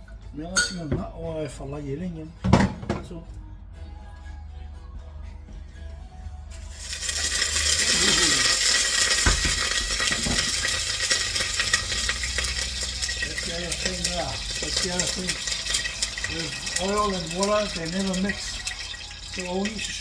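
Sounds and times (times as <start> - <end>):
food sizzling in hot oil: 6.5 - 20.0
utensil stirring in pan: 6.5 - 20.0.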